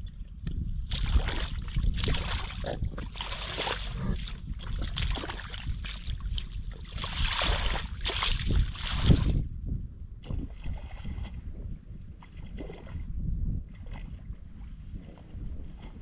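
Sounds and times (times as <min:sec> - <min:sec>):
water splashing and sloshing: 0:00.0 - 0:09.5, 0:10.2 - 0:16.0
wind buffeting microphone: 0:00.0 - 0:16.0.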